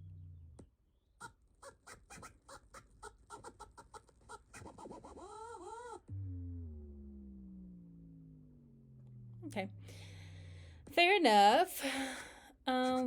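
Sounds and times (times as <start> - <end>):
low steady hum: 0.0 - 0.6, 6.0 - 13.0.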